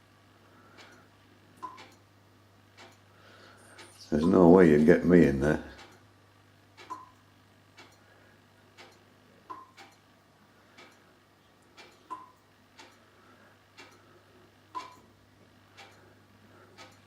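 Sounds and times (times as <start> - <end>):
faint clock ticking: 0.5 - 6.1, 6.7 - 17.0.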